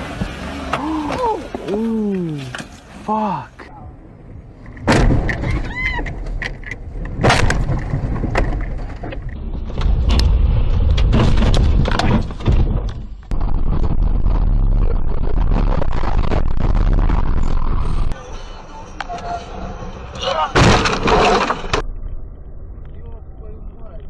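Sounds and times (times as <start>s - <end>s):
rough vehicle and road noise: 0.0s - 24.0s
car crash impact bangs: 20.5s - 21.8s.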